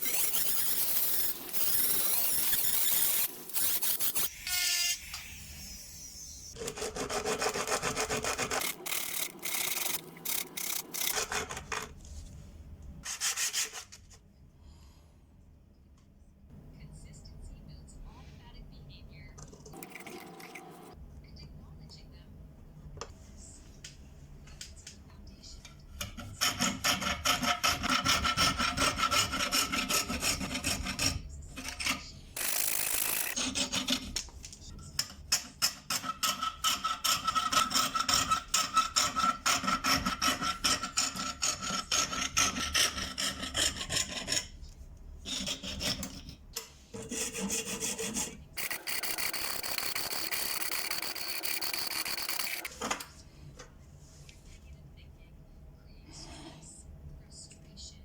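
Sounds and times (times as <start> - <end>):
hand file rasping: 26.2 - 31.2, 36.0 - 44.6, 47.0 - 48.4.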